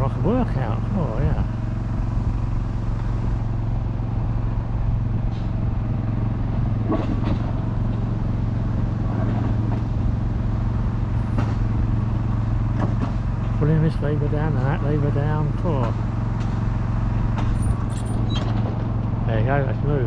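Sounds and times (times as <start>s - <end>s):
diesel engine idling hum: 0.0s - 20.0s.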